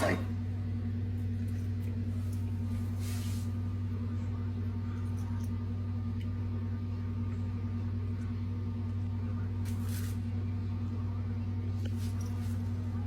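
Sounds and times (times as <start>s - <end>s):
low electrical hum: 0.0s - 13.0s
soft rustle: 1.6s - 3.7s, 11.8s - 13.0s.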